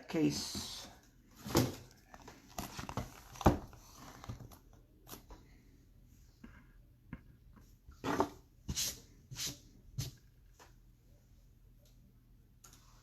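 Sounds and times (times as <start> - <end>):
cardboard boxes handled by hand: 0.2 - 5.3.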